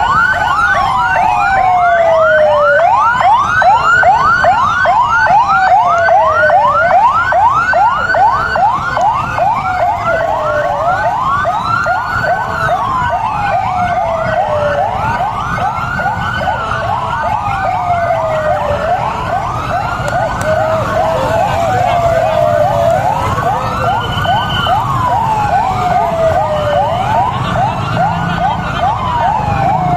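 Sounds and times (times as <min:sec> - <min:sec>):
siren fast yelp: 0:00.0 - 0:29.9
siren slow wail: 0:00.0 - 0:29.9.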